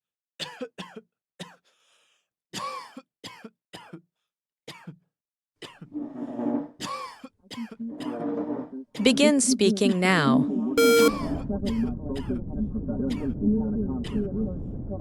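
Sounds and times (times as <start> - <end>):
person coughing: 0.4 - 1.6, 2.6 - 4.0, 6.8 - 7.8.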